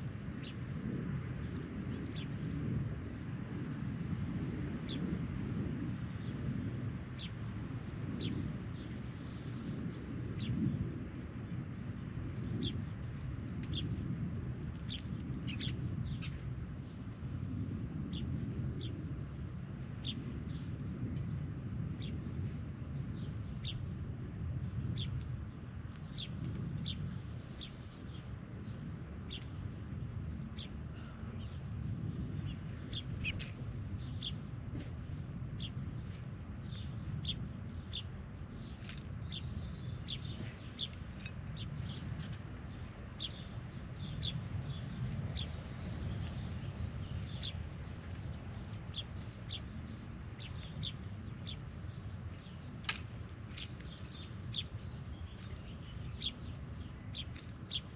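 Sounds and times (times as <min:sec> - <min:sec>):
steady low rumble: 0:00.0 - 0:57.9
birds chirping: 0:14.8 - 0:16.8, 0:30.4 - 0:57.9.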